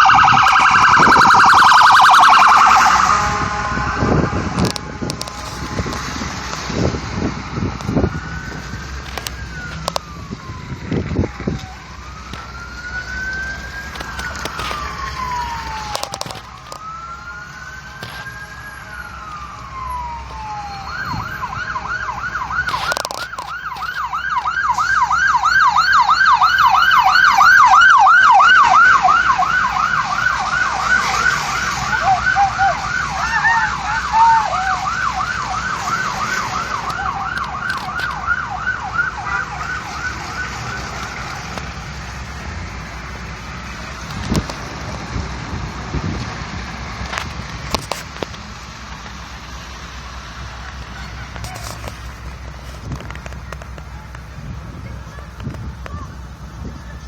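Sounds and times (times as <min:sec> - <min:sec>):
second siren: 0:00.0 - 0:46.2
emergency vehicle siren: 0:00.0 - 0:57.0.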